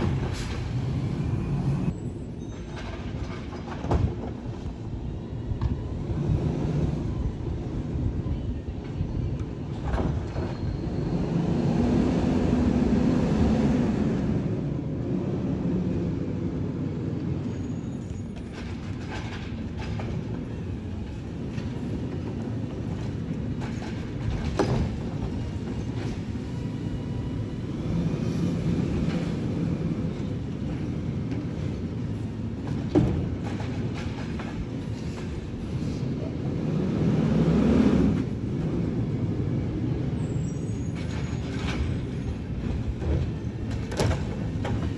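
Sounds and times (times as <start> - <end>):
garbage truck diesel rumble: 0.0 - 2.0.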